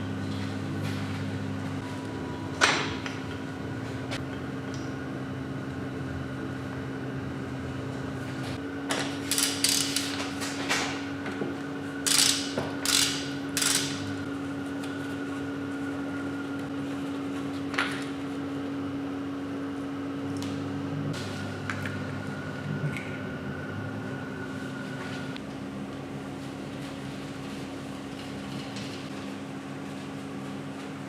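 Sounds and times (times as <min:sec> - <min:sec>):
machine humming: 0:00.0 - 0:10.1, 0:10.9 - 0:26.3.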